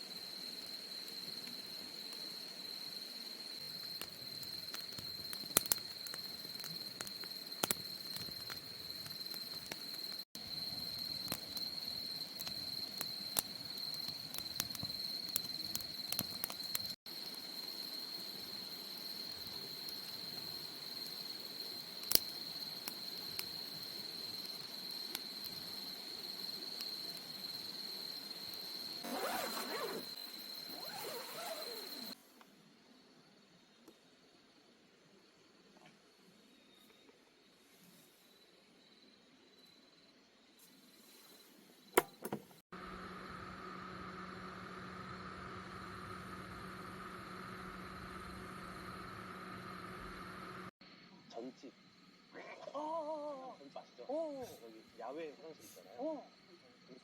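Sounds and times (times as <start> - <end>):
crickets chirring: 0.0 - 57.0
wood fire crackles: 0.1 - 32.2.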